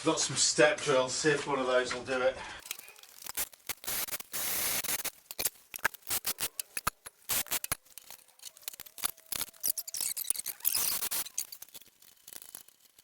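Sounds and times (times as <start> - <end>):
small metal tools clattering: 2.6 - 3.7, 5.2 - 13.0.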